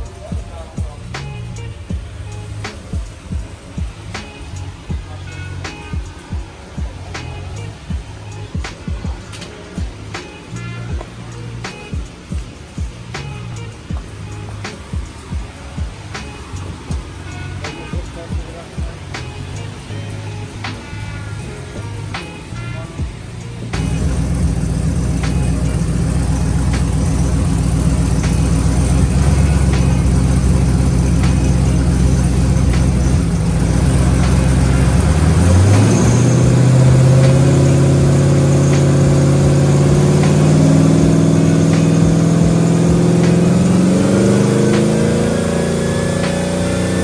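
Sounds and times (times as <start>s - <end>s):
car engine accelerating: 23.7s - 47.0s.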